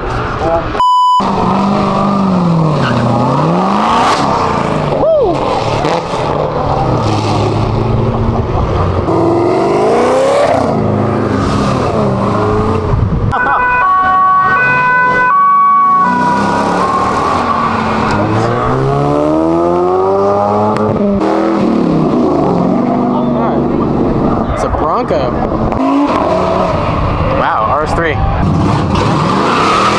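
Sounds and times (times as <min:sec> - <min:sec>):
car engines revving: 0:00.0 - 0:29.9
stepped siren-like tone: 0:13.3 - 0:18.5.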